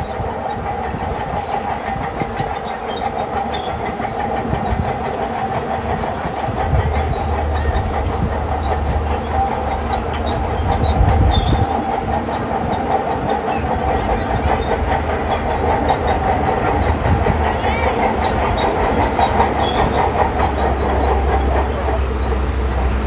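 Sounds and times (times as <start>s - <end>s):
steel tracks clattering: 0.0s - 23.0s.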